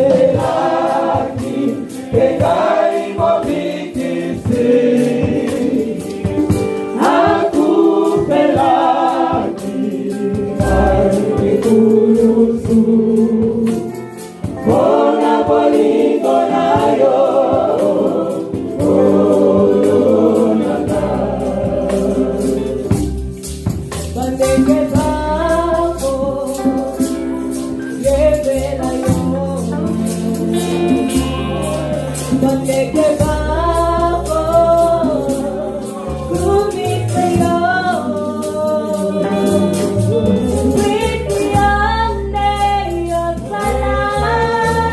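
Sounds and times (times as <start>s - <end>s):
gospel choir singing: 0.0s - 44.9s
tambourine rattle: 0.0s - 44.9s
bass line: 16.6s - 44.9s.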